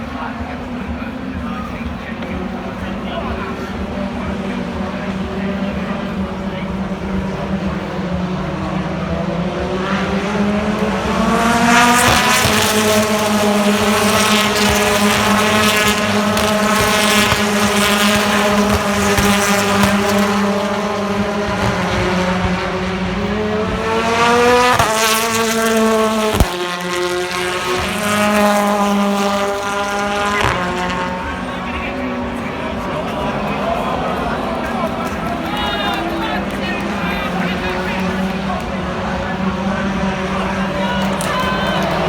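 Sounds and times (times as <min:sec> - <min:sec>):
racing car engine revving: 0:00.0 - 0:42.0.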